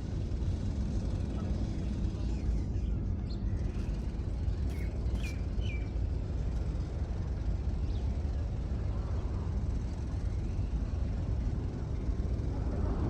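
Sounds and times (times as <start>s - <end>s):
steady low rumble: 11.3s - 13.0s.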